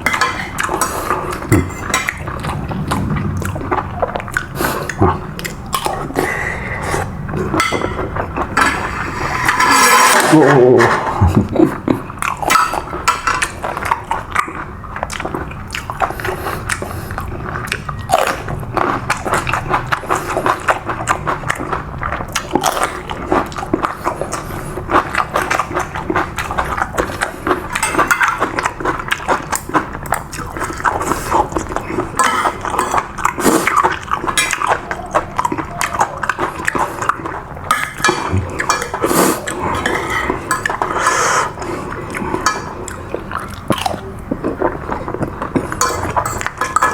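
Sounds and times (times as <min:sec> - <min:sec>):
spoon clinking on a plate: 0:07.6 - 0:08.8, 0:27.8 - 0:28.5, 0:45.8 - 0:46.9.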